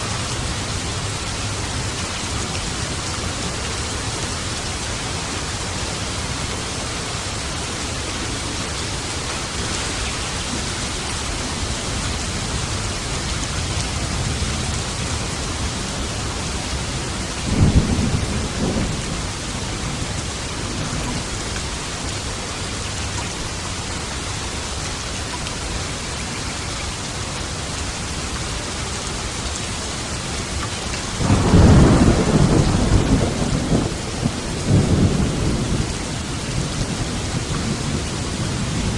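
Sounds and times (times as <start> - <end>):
heavy rain: 0.0 - 38.9
rolling thunder rumble: 9.5 - 21.5, 31.2 - 38.9
sharp thunderclap: 31.2 - 35.9.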